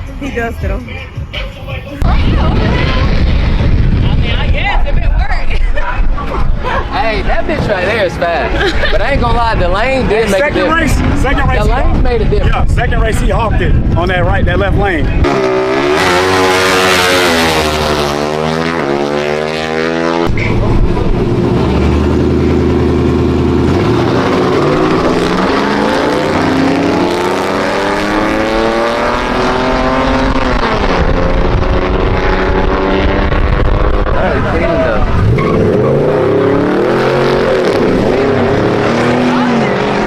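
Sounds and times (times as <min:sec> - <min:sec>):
racing car engines accelerating: 0:15.0 - 0:40.0.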